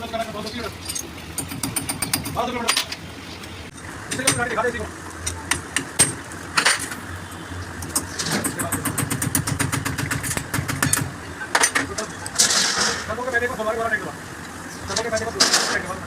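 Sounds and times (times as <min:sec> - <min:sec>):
sharp metal knocks: 0:00.9 - 0:03.0, 0:03.8 - 0:04.6, 0:05.4 - 0:06.9, 0:07.8 - 0:13.0
rapid even clicking: 0:07.8 - 0:11.1.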